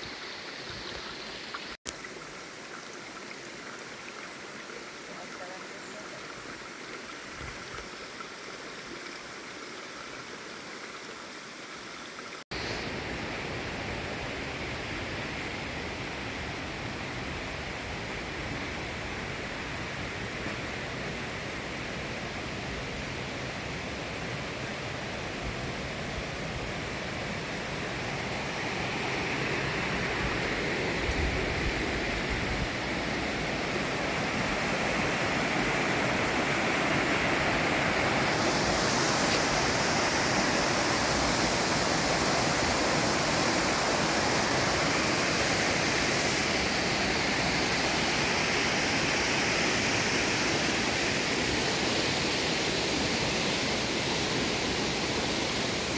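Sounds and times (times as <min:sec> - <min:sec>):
waterfall rushing: 0:21.6 - 0:55.9.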